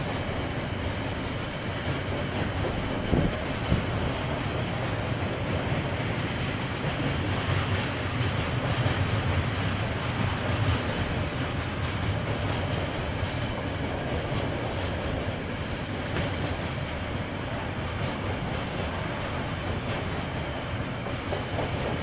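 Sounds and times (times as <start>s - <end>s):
train wheels on rails: 0.0s - 22.0s
high squeal: 5.7s - 6.8s.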